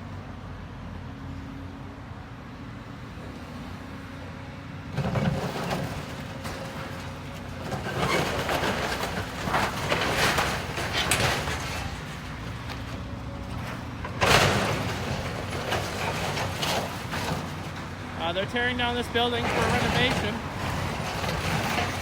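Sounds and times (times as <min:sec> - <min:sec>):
demolition machine engine running: 0:04.8 - 0:22.0
building crunching and crashing: 0:04.9 - 0:22.0.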